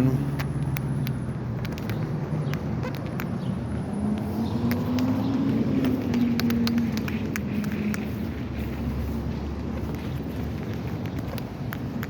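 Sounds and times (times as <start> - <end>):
passing road traffic: 0.0 - 12.0
light clicks: 9.9 - 12.0.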